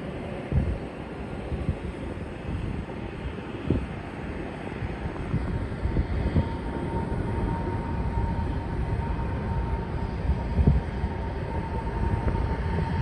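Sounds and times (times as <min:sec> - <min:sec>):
jet engines rumbling: 0:00.0 - 0:13.0
steady whine: 0:00.0 - 0:13.0
wind on microphone: 0:00.0 - 0:13.0.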